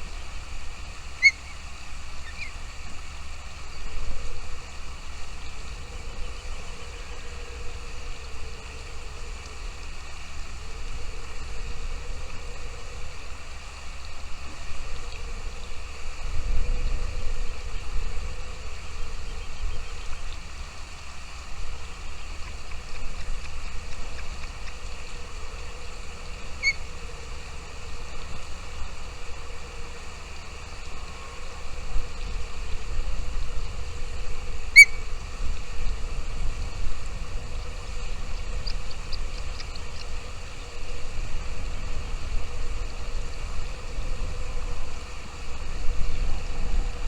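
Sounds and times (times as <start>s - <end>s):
low rumble and hiss: 0.0s - 47.0s
faint high ticks: 8.6s - 10.2s, 22.1s - 29.0s, 38.3s - 40.2s
high bird chirps: 26.6s - 26.8s, 34.8s - 35.0s.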